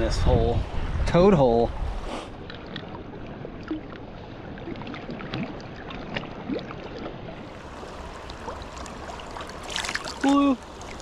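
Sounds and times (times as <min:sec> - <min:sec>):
river water gurgling: 0:02.4 - 0:11.0
small splashes and plops: 0:04.6 - 0:11.0.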